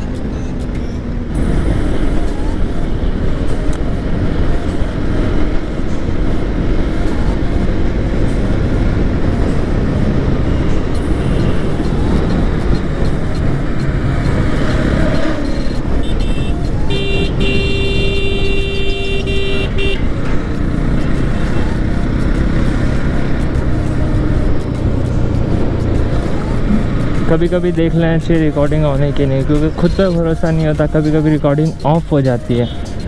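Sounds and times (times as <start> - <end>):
motorcycle engine and road rumble: 0.0 - 33.0
vehicle horn blast: 16.0 - 20.1.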